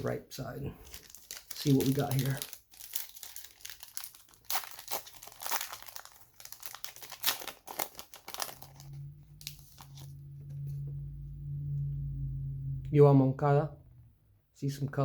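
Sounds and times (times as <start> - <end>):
wrapper crinkling and tearing: 0.8 - 10.1
low hum: 8.3 - 15.0.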